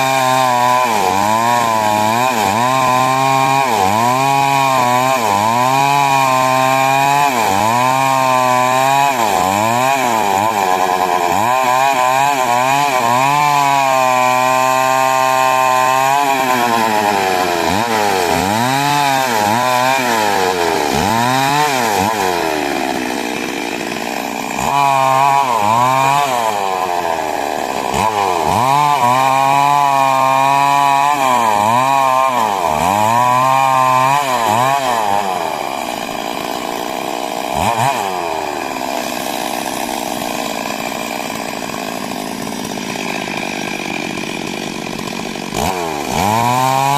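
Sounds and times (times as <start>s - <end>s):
chainsaw cutting wood: 0.0s - 46.9s.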